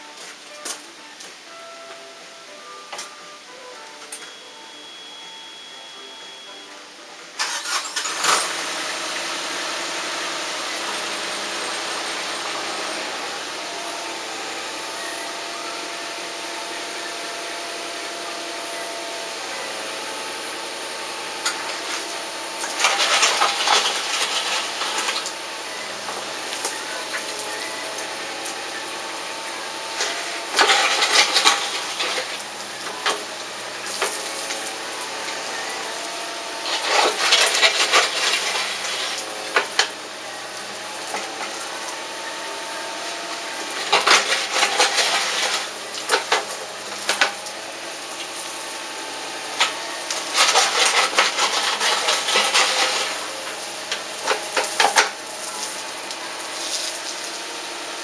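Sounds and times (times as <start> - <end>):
stones and earth scraping: 22.7 - 25.1, 36.6 - 39.1, 43.8 - 45.7, 50.1 - 53.2.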